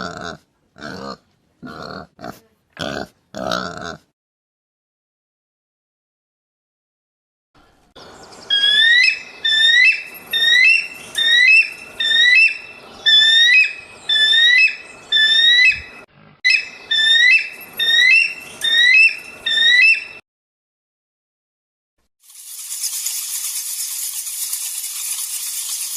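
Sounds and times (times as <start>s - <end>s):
animal whistled call: 8.5s - 20.2s.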